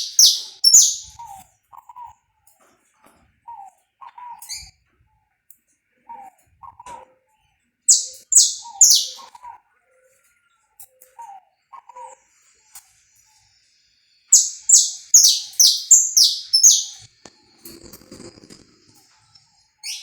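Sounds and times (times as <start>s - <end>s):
finch singing: 0.0s - 1.3s, 7.9s - 9.4s, 14.3s - 17.1s, 19.8s - 20.0s
high bird chirps: 0.0s - 1.3s, 7.9s - 9.4s, 14.3s - 17.1s, 19.4s - 20.0s.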